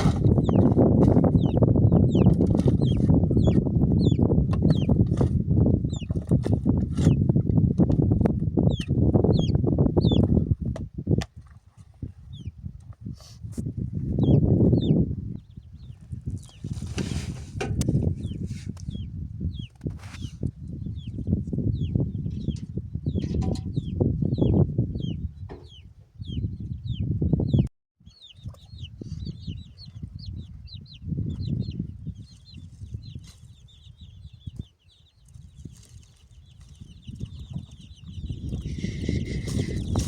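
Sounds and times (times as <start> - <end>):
small birds chirping: 0.0 - 5.0, 5.8 - 6.2, 8.6 - 10.3, 12.3 - 12.6, 14.1 - 16.8, 18.2 - 40.0
low rumbling rustling noise: 16.0 - 18.9.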